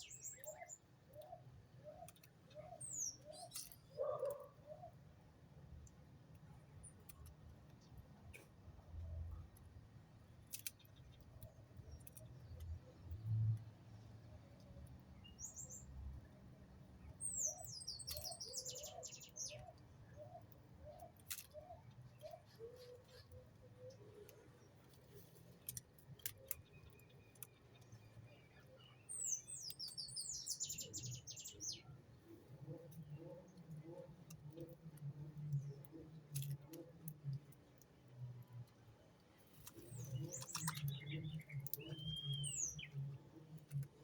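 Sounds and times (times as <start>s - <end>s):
faint clicks: 32.8s - 42.6s
songbird singing descending phrases: 39.9s - 43.1s.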